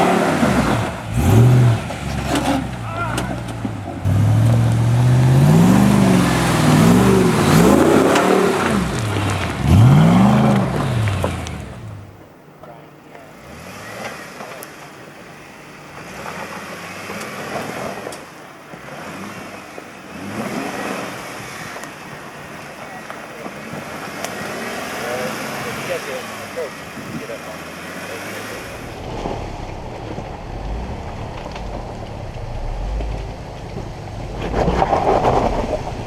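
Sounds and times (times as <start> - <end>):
truck engine revving hard: 0.0 - 12.2, 13.4 - 14.6, 18.8 - 22.2, 23.6 - 36.0
quieter vehicle engine: 0.0 - 17.4, 18.0 - 36.0.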